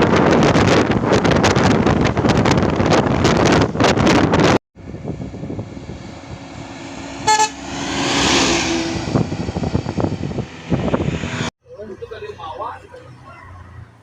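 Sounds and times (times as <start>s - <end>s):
road traffic: 0.0s - 14.0s
vehicle rushing past: 4.8s - 11.5s
car horn toot: 7.2s - 7.7s.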